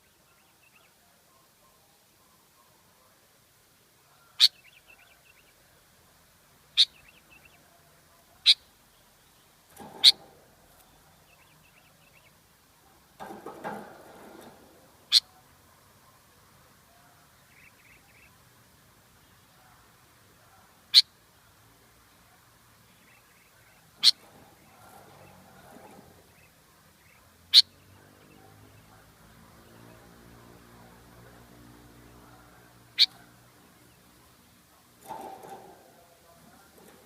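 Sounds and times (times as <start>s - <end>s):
faint bird twittering: 32.2s - 33.8s.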